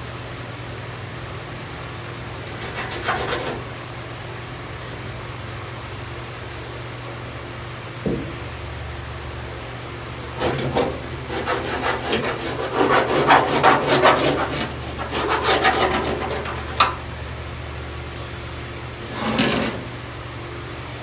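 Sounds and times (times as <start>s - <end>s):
sheet metal scraping: 10.2s - 17.0s, 19.0s - 20.0s.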